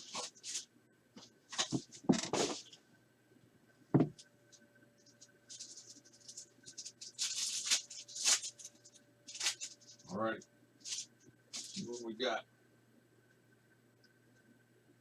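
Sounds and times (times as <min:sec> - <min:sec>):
wrappers crinkling and tearing: 0:00.0 - 0:00.7, 0:05.5 - 0:10.1, 0:10.8 - 0:12.0.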